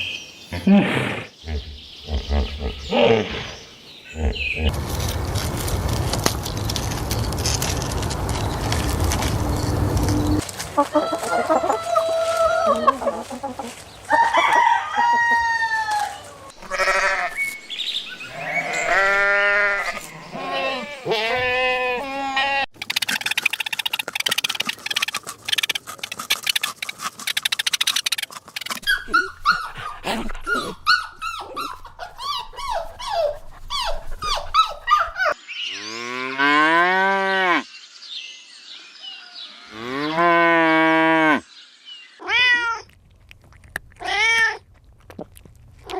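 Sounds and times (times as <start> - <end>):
fowl sounds: 10.8 - 16.1
goats or sheep bleating: 16.5 - 17.4, 18.3 - 22.7.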